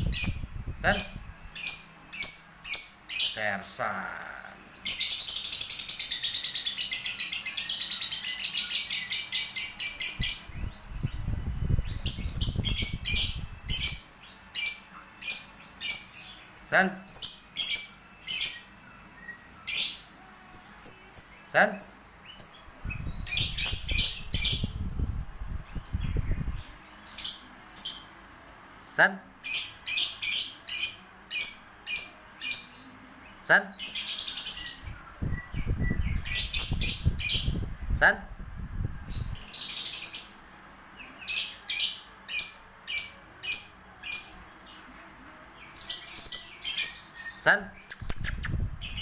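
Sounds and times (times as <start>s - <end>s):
lovebird chirping: 0.0s - 28.8s, 29.4s - 38.0s, 38.6s - 49.0s.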